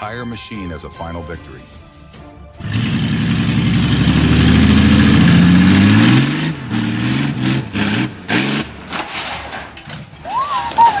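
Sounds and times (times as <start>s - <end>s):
vehicle engine revving: 2.6s - 9.0s.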